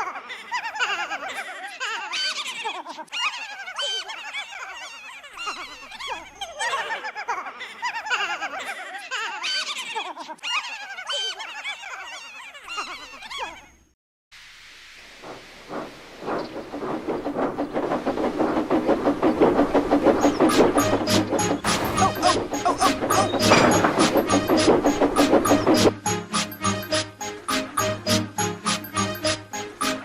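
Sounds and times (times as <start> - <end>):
chorus of high giggles: 0.0 - 13.8.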